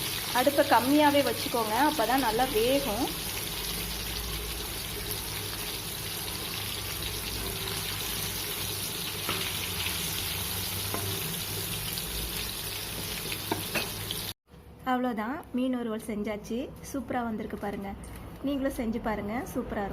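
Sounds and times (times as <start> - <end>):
fish sizzling on a griddle: 0.0 - 0.6, 3.0 - 14.4.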